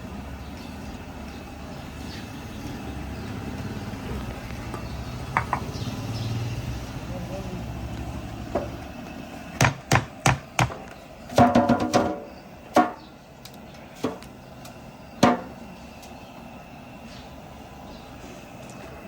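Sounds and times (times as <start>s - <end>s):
cleaver chopping on wooden block: 9.6s - 10.8s.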